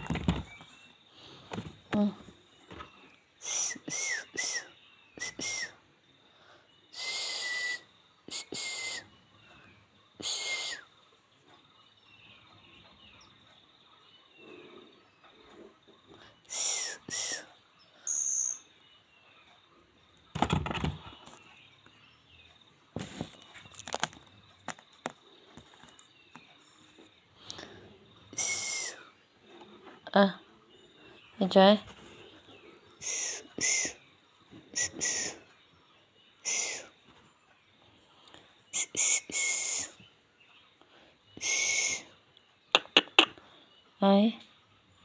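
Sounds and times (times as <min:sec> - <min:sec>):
faint chirps: 0:00.1 - 0:45.0
baby bird harsh calls: 0:10.2 - 0:10.9, 0:28.4 - 0:29.0, 0:33.0 - 0:34.0, 0:34.7 - 0:35.5, 0:36.4 - 0:37.0, 0:38.8 - 0:40.0, 0:41.4 - 0:43.4.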